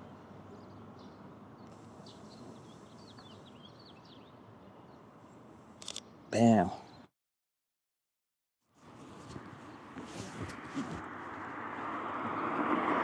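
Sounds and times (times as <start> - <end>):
small birds chirping: 0.0 - 7.1.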